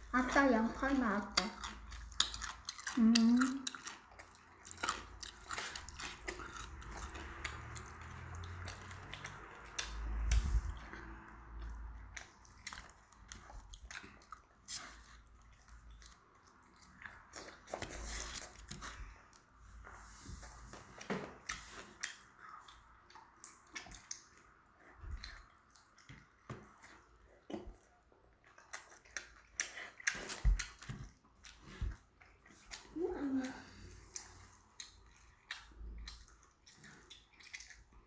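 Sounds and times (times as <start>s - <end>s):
child chewing food: 0.0s - 38.0s
mouth clicks and smacks: 21.4s - 33.0s, 34.1s - 38.0s.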